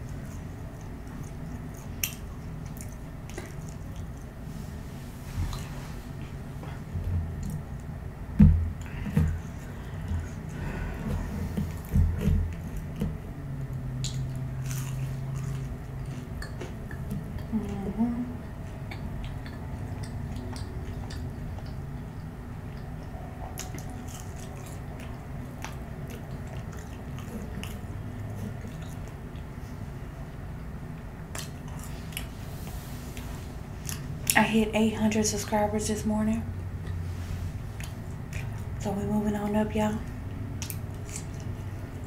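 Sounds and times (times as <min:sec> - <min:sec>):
wet mouth chewing clicks: 0:00.0 - 0:04.4, 0:08.8 - 0:17.8, 0:18.4 - 0:29.6, 0:36.8 - 0:37.0, 0:37.8 - 0:38.8, 0:40.2 - 0:42.0
low hum: 0:00.0 - 0:42.0.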